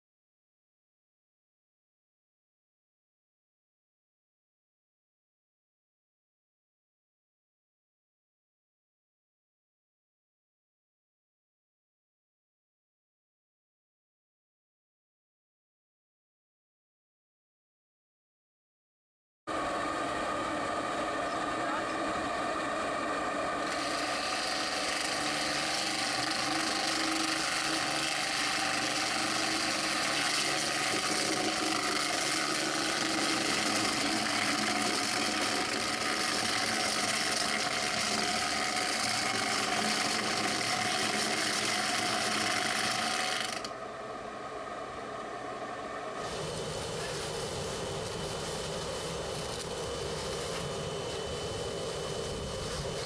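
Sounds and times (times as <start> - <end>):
grinder running: 19.5 - 43.8, 46.2 - 53.0.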